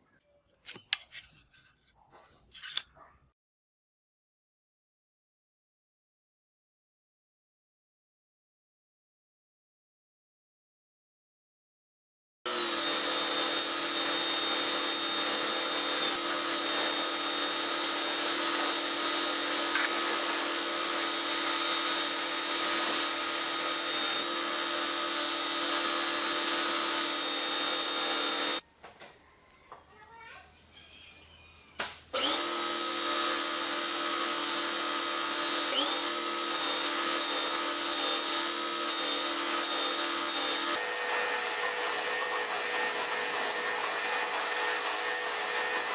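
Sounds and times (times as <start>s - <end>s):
power tool whining: 12.5s - 28.6s, 32.1s - 45.9s.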